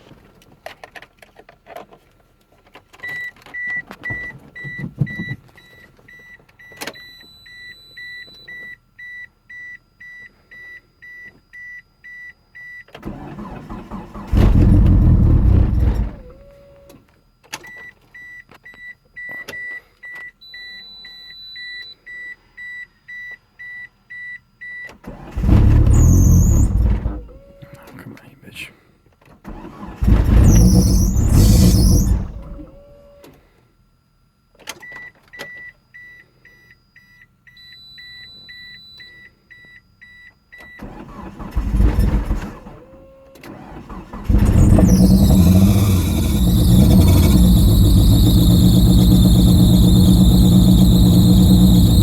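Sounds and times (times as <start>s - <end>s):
starter cranking engine: 13.0s - 16.4s, 25.1s - 27.4s, 29.5s - 32.8s, 40.8s - 42.7s, 43.5s - 52.0s
dashboard warning chime beeping: 17.7s - 25.6s, 34.8s - 41.4s.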